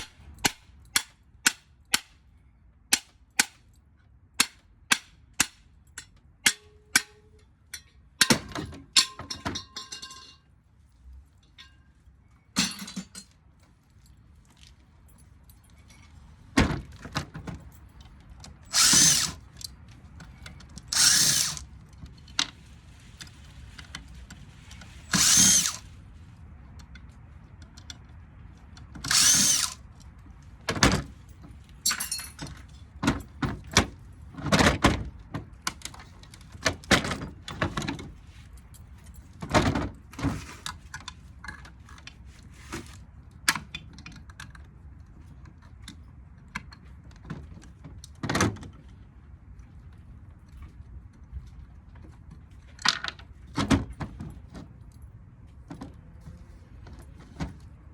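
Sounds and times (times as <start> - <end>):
metal clanks and knocks: 6.0 - 10.5, 11.4 - 13.4
power drill bursts: 18.7 - 19.4, 20.9 - 21.6, 25.1 - 25.8, 29.1 - 29.8.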